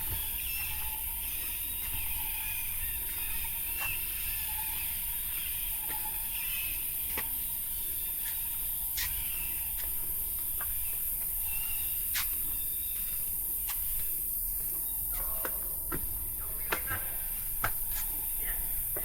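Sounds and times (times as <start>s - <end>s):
footsteps on stone: 0.0s - 19.0s
insects droning: 0.0s - 19.0s.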